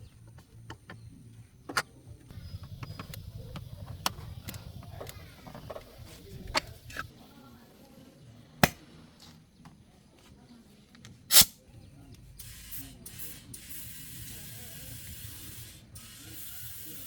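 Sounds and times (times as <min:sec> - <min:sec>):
low hum: 0:02.3 - 0:07.1.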